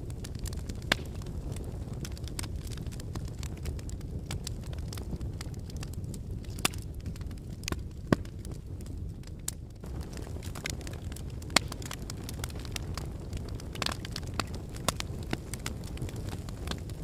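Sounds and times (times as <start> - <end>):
fire rumbling and crackling: 0.0 - 17.0.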